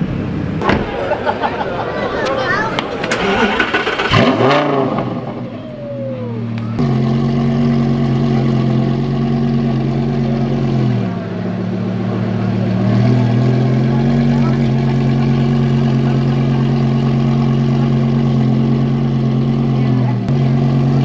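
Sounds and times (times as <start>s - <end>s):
crowd voices: 0.0s - 18.8s
car engine starting and idling: 0.0s - 21.0s.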